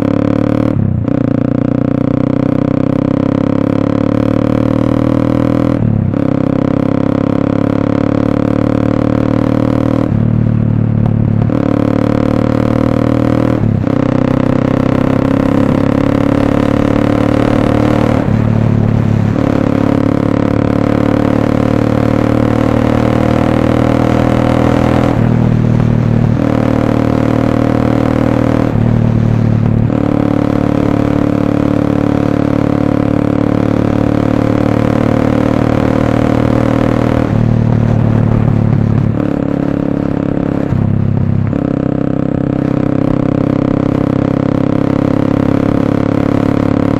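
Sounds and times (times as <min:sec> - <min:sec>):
motorcycle engine riding: 0:00.0 - 0:46.9.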